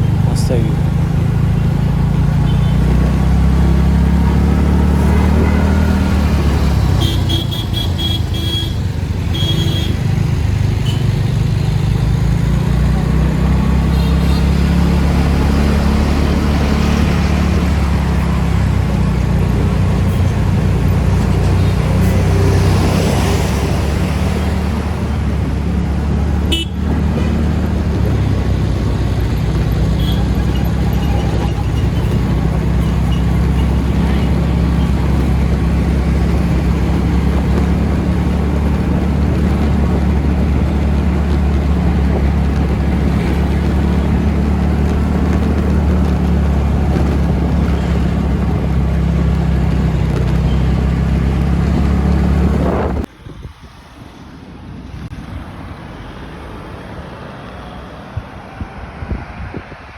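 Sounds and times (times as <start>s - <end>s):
low rumble of road traffic: 0.0s - 59.9s
vehicles passing: 0.0s - 59.9s
vehicle horn tooting: 5.0s - 6.0s, 6.9s - 10.0s, 26.5s - 26.8s.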